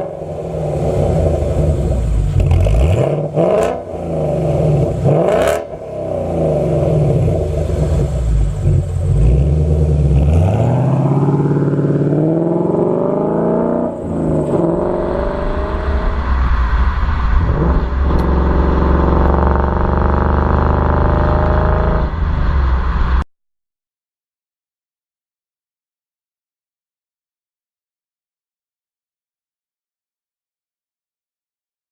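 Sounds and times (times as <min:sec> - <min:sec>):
car engine revving: 0:00.0 - 0:23.2.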